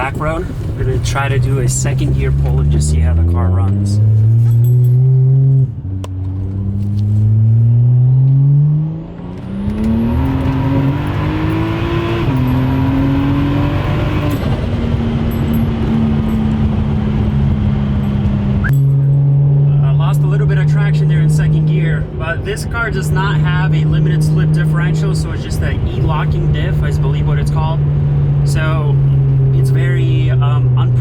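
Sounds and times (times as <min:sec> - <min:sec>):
car engine accelerating through gears: 0:00.0 - 0:31.0.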